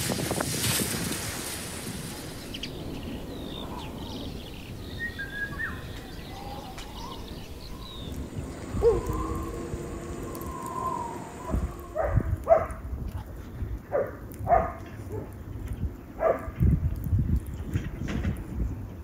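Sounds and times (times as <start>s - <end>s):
birds chirping and whistling: 1.8s - 12.3s
low drawn-out bird call: 2.0s - 12.2s.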